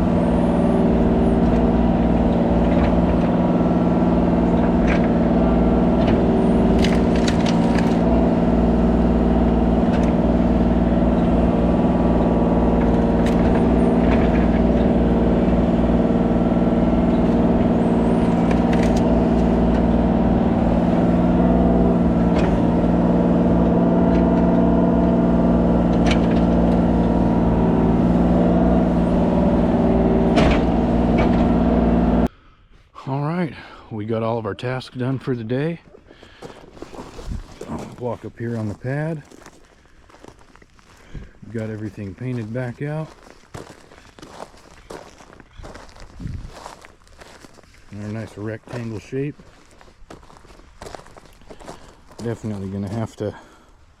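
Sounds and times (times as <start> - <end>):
diesel engine running: 0.0 - 32.3, 34.6 - 53.7
short clanks and knocks: 1.1 - 8.3, 11.0 - 23.0, 25.5 - 28.8, 29.4 - 31.8.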